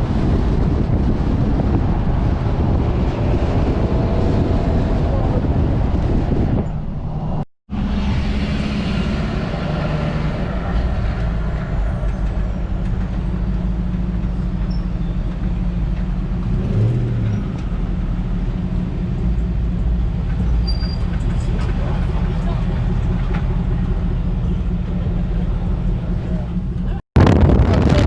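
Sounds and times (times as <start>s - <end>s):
truck engines idling: 7.7s - 28.0s.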